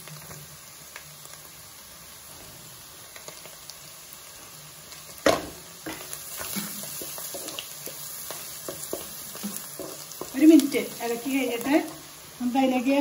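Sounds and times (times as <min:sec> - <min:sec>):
garlic sizzling in hot oil: 0:00.0 - 0:13.0
spatula scraping and stirring: 0:05.8 - 0:11.3.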